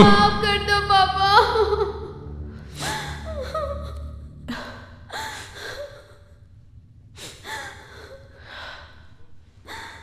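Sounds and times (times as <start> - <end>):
woman sobbing: 1.3 - 2.2, 2.8 - 6.3, 7.2 - 8.4.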